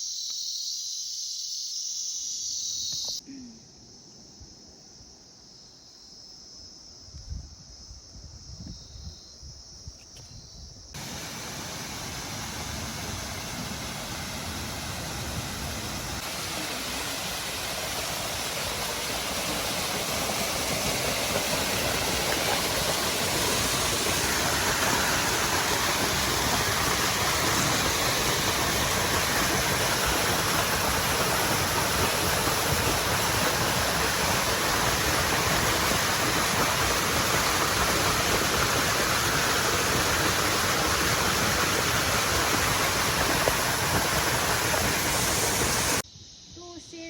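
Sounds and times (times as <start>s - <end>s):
water rushing loudly: 11.0s - 46.0s.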